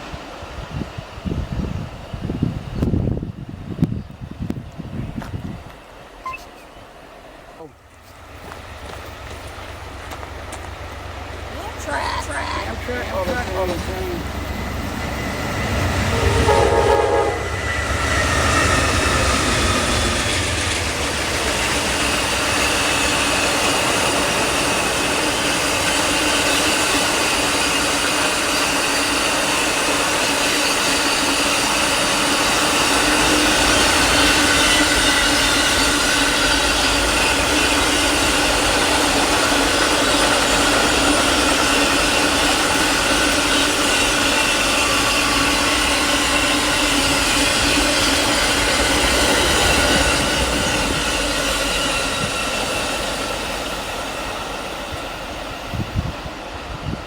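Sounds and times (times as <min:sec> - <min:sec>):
train cars rolling by: 0:00.0 - 0:57.0
wheels clickety-clack: 0:07.9 - 0:11.8, 0:12.6 - 0:16.2, 0:17.7 - 0:56.2
train horn blast: 0:15.3 - 0:18.4.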